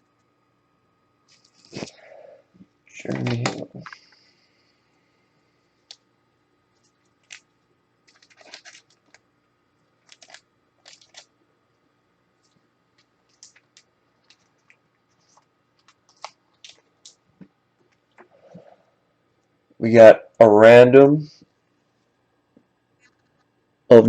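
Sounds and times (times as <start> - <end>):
trading cards crinkling: 6.8 - 9.3, 10.0 - 11.3, 12.4 - 17.2.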